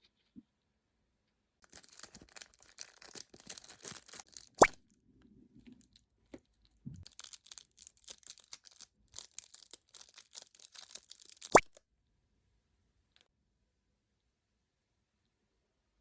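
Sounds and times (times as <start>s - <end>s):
plastic packaging crinkling: 1.6s - 4.8s, 7.0s - 11.8s.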